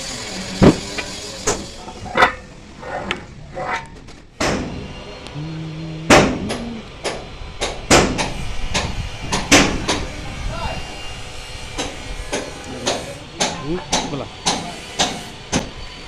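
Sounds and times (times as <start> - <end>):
low hum: 4.6 - 10.4
hammer striking steel frame: 6.1 - 10.0, 11.8 - 15.8.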